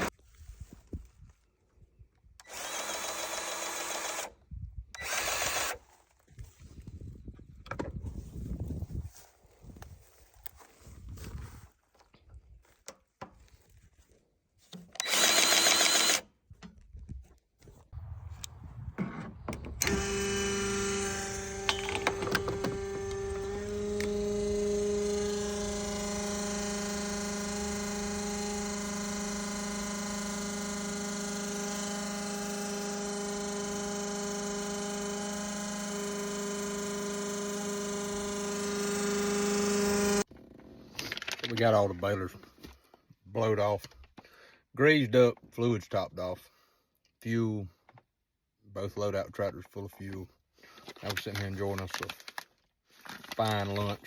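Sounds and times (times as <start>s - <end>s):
motor-driven machine running: 2.4s - 4.3s, 5.0s - 5.8s, 15.0s - 16.2s, 18.0s - 40.3s
sharp clicks: 18.2s - 30.6s.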